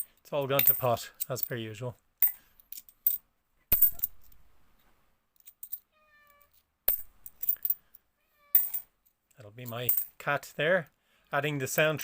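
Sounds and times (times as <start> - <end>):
coins clicking and clinking: 2.2 - 4.4, 5.4 - 5.8, 6.5 - 7.8, 8.5 - 8.9
cat meowing faintly: 5.9 - 6.5, 8.2 - 8.6.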